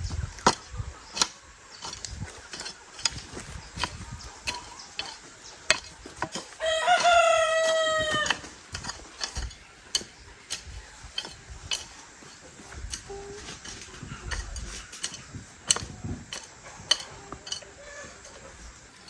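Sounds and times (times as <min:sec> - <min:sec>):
rooster crowing: 0:06.6 - 0:08.6.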